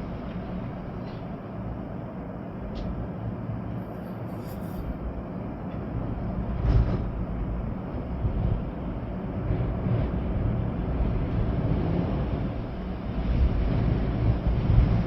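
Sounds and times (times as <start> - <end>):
rain: 0.0 - 3.8, 5.2 - 15.0
storm wind gusting: 6.4 - 15.0.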